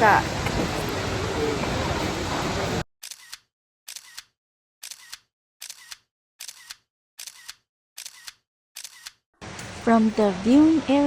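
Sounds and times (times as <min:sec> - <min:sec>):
rain and falling water: 0:00.0 - 0:02.8, 0:09.4 - 0:11.0
camera shutter double clicks: 0:03.0 - 0:09.2.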